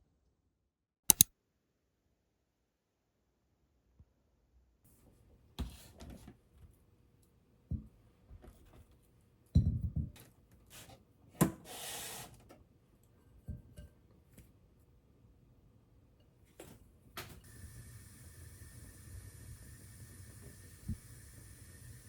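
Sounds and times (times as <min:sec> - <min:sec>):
kitchen knocks and taps: 0:07.7 - 0:08.6, 0:09.6 - 0:10.3, 0:13.4 - 0:13.9
brief hissing rustle: 0:11.6 - 0:12.4.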